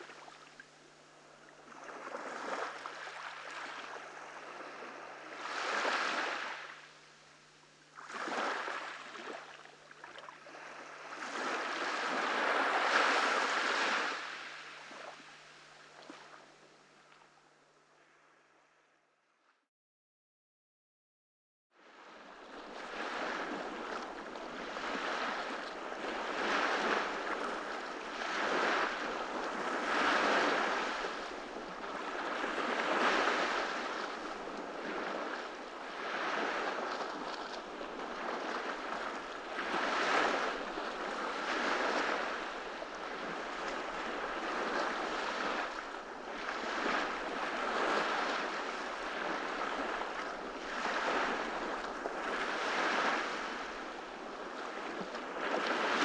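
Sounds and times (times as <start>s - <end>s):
ocean surf breaking on beach: 1.8s - 6.7s, 10.5s - 15.1s, 22.7s - 56.0s.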